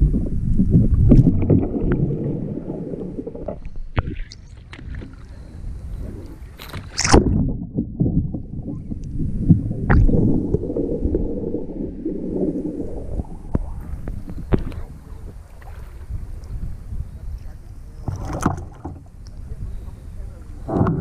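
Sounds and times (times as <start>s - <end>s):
water sloshing around kayak: 1.1s - 9.0s, 10.1s - 21.0s
sharp water splash: 6.8s - 7.6s, 9.9s - 11.4s.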